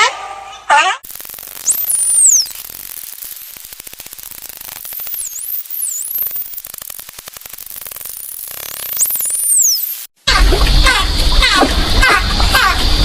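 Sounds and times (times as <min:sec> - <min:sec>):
dolphin echolocation clicks: 0:01.0 - 0:10.0
steady hiss: 0:01.0 - 0:10.2
dolphin whistles: 0:01.7 - 0:02.6.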